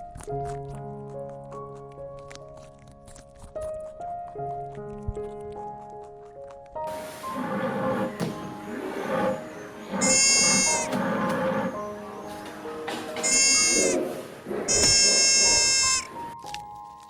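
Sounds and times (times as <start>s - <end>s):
soft background music: 0.0s - 17.0s
sheep bleating: 9.9s - 11.0s, 13.1s - 14.1s, 14.7s - 16.2s.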